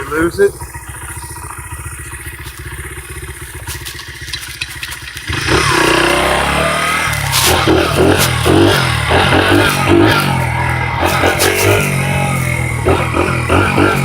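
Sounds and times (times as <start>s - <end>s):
dirt bike engine idling: 0.0s - 14.0s
loud music: 7.4s - 14.0s.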